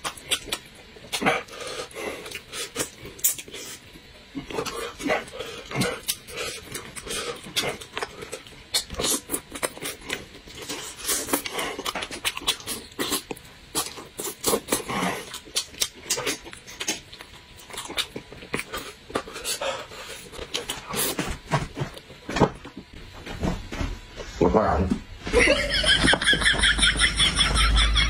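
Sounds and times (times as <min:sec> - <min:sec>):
man chewing and lip-smacking: 0:00.0 - 0:21.3.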